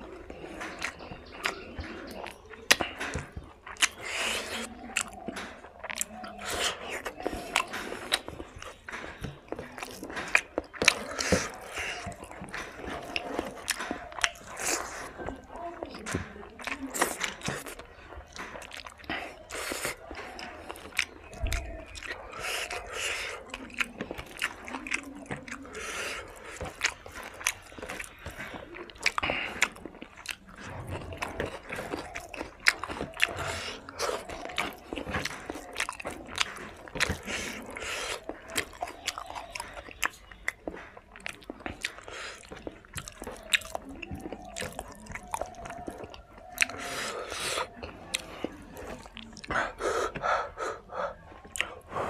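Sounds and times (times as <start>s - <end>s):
person chewing: 0.0s - 52.0s
wet mouth clicks: 0.3s - 51.9s.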